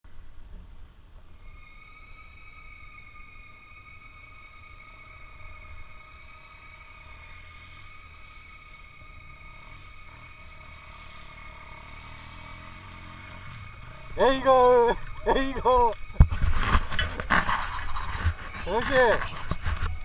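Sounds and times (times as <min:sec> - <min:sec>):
low rumble: 0:00.1 - 0:20.0
distant dirt bike engine revving: 0:08.8 - 0:16.3.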